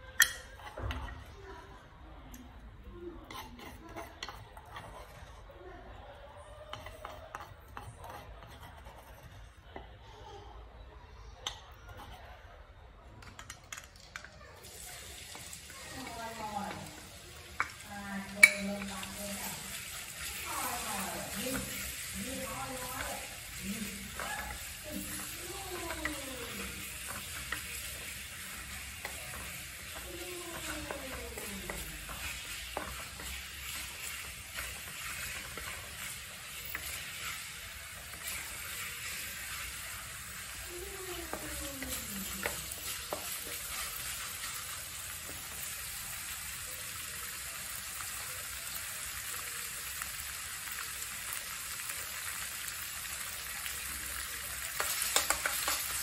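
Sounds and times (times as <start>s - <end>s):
wooden spatula scraping: 3.2s - 5.5s, 6.6s - 9.8s, 14.7s - 45.4s
food sizzling in oil: 13.4s - 56.0s.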